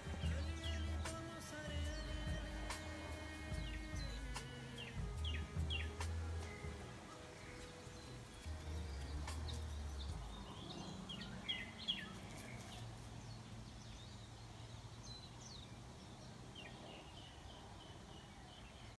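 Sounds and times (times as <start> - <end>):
birds chirping: 0.0 - 19.0
faint low rumble: 1.8 - 11.5.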